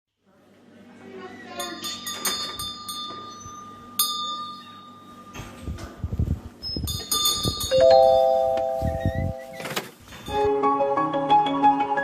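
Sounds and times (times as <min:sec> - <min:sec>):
metallic chimes ringing: 0:01.6 - 0:05.6, 0:06.8 - 0:09.6.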